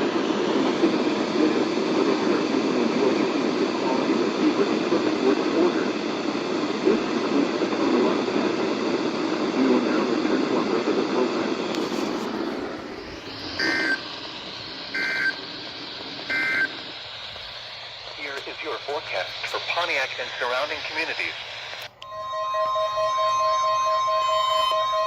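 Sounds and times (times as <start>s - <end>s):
radio static hiss: 0.0s - 22.0s
warbling two-tone data bursts: 13.0s - 15.5s, 16.2s - 17.0s.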